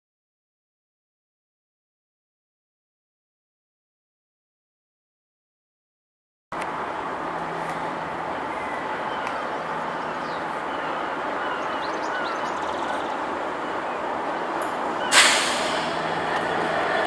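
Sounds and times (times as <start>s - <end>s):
freight train rumble: 6.6s - 17.0s
loud burst of hiss: 15.1s - 16.1s.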